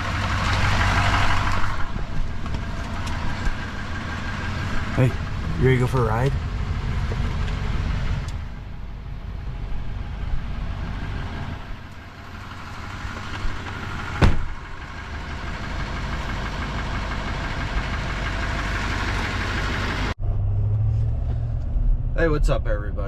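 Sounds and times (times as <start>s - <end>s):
vehicle engine idling: 0.0s - 23.0s
sharp thump: 14.2s - 14.6s.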